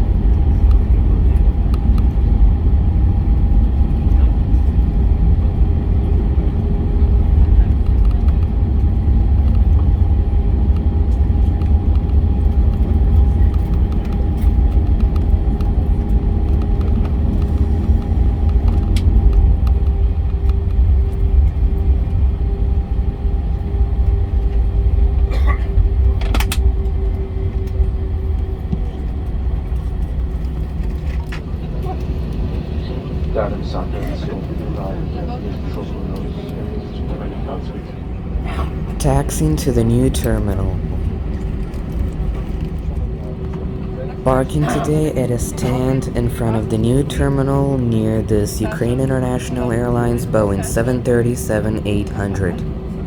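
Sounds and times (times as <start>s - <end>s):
deep rumble inside plane cabin: 0.0s - 53.0s
steady hum: 39.0s - 41.1s, 44.3s - 52.7s.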